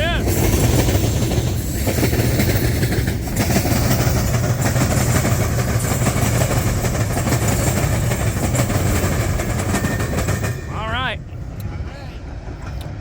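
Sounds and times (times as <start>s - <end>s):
freight train rumbling past: 0.0s - 13.0s
wheels clacking over rail joints: 0.0s - 13.0s.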